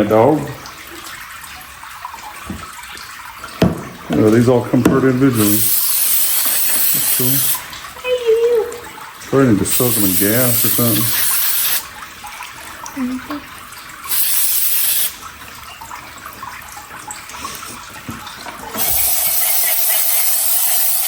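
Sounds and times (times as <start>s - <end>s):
loud hissing spray bursts: 5.4s - 7.6s, 9.7s - 11.8s, 14.1s - 15.2s, 18.8s - 21.0s.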